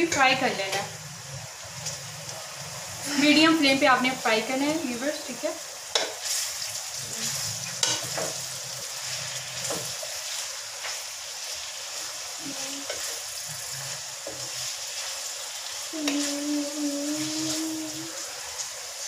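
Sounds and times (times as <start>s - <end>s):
food sizzling in a wok: 0.0s - 19.0s
spoon scraping and knocking pan: 5.9s - 6.4s, 7.6s - 8.4s.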